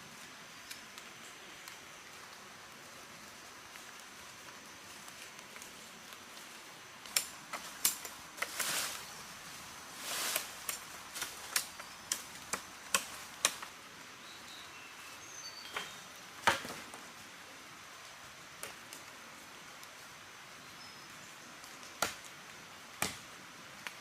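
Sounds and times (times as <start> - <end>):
faint hiss: 0.0 - 24.0
rustling swishes: 8.4 - 11.6.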